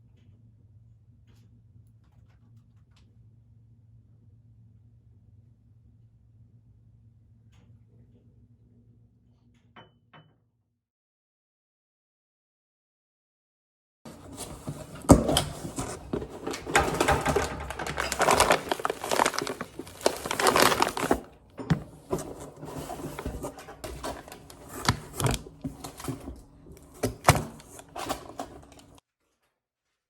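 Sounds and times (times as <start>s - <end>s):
handling clicks and knocks: 14.1s - 29.0s
rustling: 14.1s - 29.0s.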